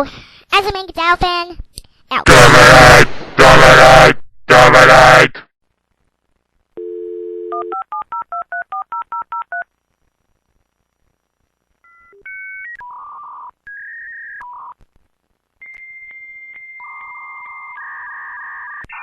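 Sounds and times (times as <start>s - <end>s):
telephone dial tone: 6.8s - 9.6s.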